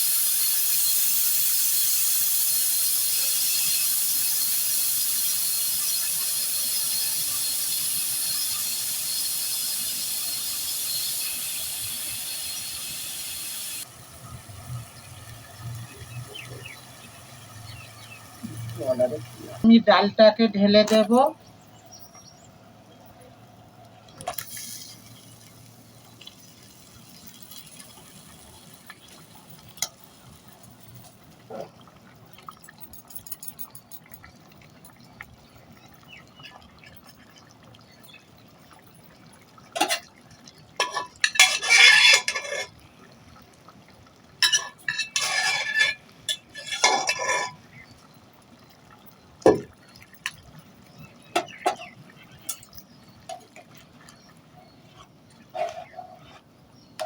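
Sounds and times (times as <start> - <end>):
liquid splashing into a pan: 38.9 - 43.0, 44.0 - 54.2
metal utensils clinking: 39.8 - 40.1, 40.8 - 42.8, 44.4 - 47.7, 51.4 - 53.6.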